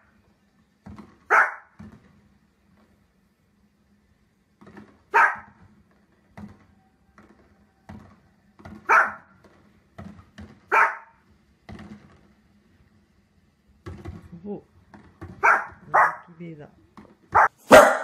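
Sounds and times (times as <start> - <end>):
small dog barking: 1.3 - 1.7, 5.1 - 5.6, 8.9 - 9.3, 10.7 - 11.2, 15.4 - 16.3, 17.3 - 18.0.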